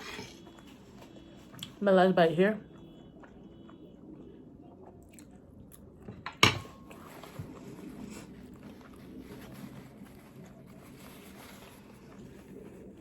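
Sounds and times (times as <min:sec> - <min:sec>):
faint chewing: 0:00.0 - 0:13.0
tableware knocking: 0:06.2 - 0:06.8.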